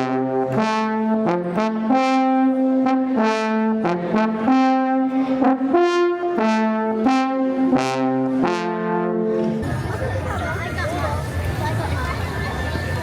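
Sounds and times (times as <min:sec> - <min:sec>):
brass instrument melody: 0:00.0 - 0:09.6.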